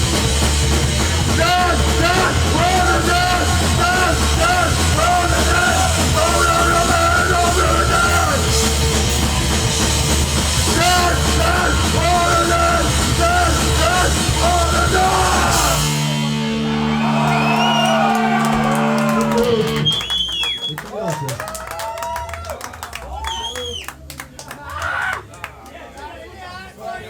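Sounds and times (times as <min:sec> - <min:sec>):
punk band playing distorted music: 0:00.0 - 0:20.1
person yelling vocals: 0:10.8 - 0:15.8.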